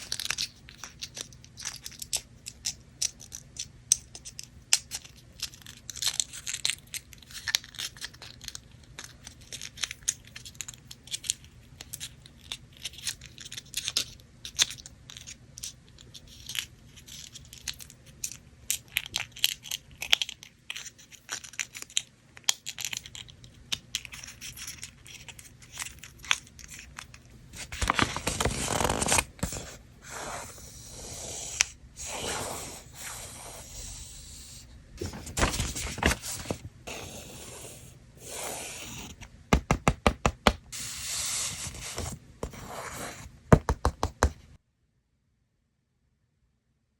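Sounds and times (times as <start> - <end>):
paper crinkling and tearing: 24.0 - 31.0, 35.0 - 37.1
paper rustling: 24.4 - 30.6, 35.0 - 37.6, 40.8 - 43.3.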